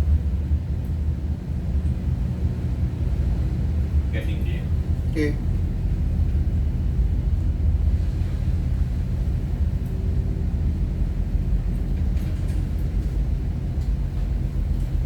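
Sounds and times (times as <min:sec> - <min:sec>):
ship engines rumbling: 0:00.0 - 0:15.0.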